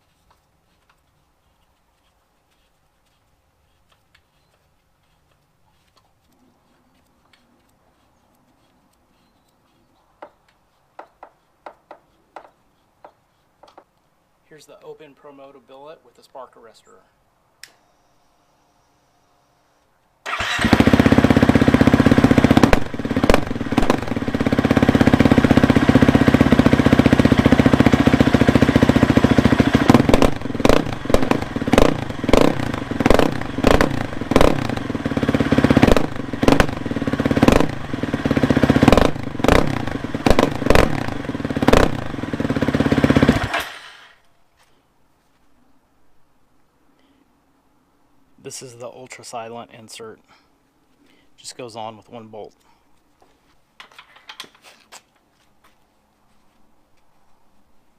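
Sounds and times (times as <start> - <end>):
dirt bike engine revving: 20.3 - 44.2.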